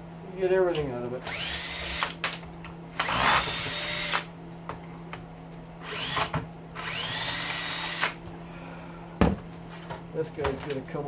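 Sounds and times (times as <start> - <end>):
steady low hum: 0.0 - 11.0
cordless drill whining: 1.3 - 2.2, 3.0 - 4.3, 5.8 - 8.2.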